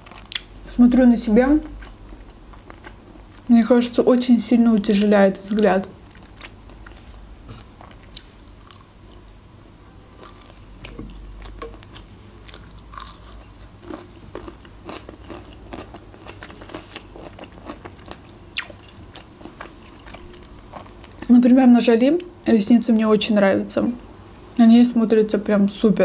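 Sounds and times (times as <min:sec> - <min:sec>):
chewing with mouth clicks: 0:00.0 - 0:00.7, 0:01.6 - 0:03.5, 0:05.5 - 0:09.5, 0:10.2 - 0:21.3.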